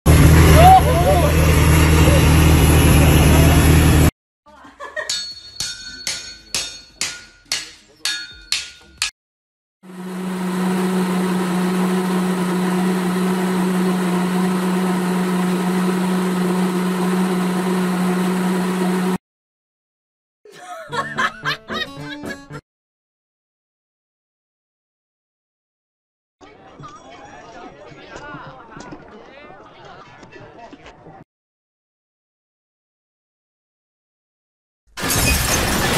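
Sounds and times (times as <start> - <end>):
hand mixer motor humming: 9.9 - 19.2.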